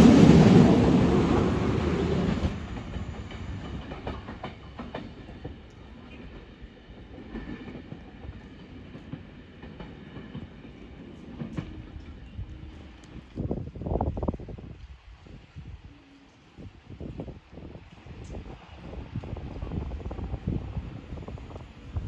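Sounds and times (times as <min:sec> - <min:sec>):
diesel train running: 0:00.0 - 0:14.3.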